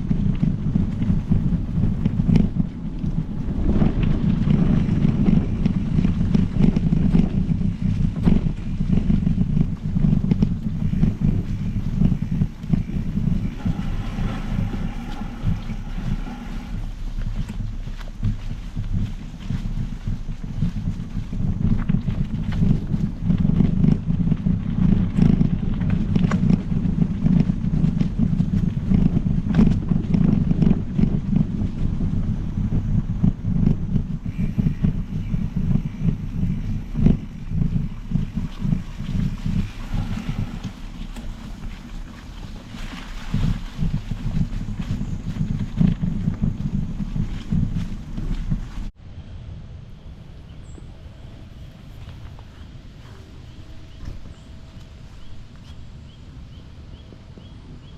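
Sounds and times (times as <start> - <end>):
bike tyres on trail: 0.0 - 49.0, 50.1 - 57.9
wind buffeting microphone: 0.0 - 57.9
bike clicks and rattles: 14.9 - 48.9.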